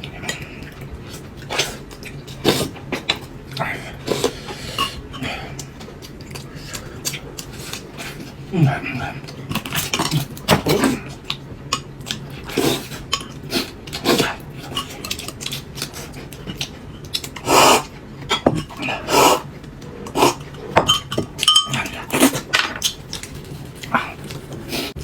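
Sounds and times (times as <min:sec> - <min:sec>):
dishes and utensils clattering: 0:20.3 - 0:23.0.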